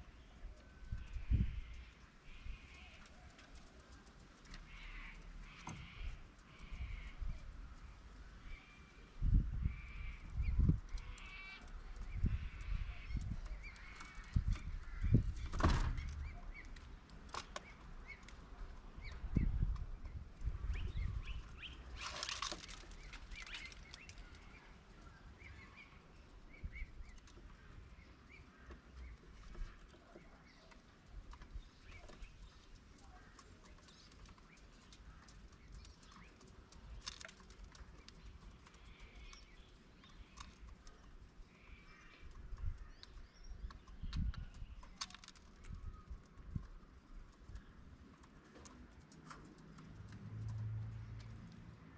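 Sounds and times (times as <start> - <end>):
birds chirping: 0.0 - 51.9.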